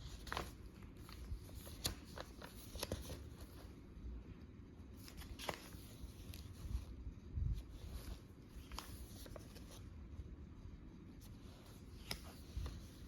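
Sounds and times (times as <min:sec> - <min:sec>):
pages rustling: 0:00.0 - 0:03.9, 0:04.9 - 0:07.0, 0:07.6 - 0:10.0, 0:11.2 - 0:13.0.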